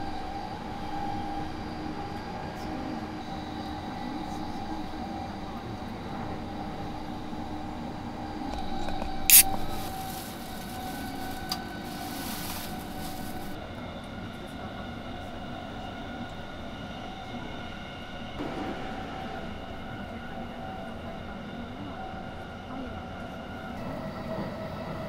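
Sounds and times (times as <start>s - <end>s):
electric train running noise: 0.0s - 25.0s
can pull tab opening: 9.3s - 9.6s
high fizzing hiss: 9.3s - 13.6s.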